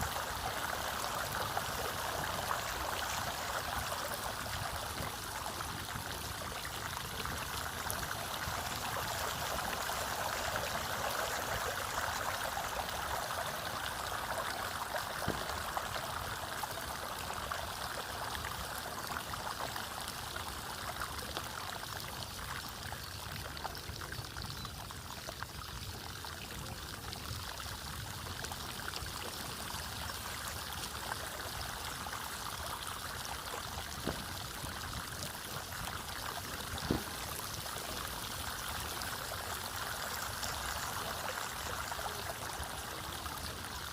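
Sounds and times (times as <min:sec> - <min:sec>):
floodwater rushing: 0:00.0 - 0:20.6, 0:29.5 - 0:43.9.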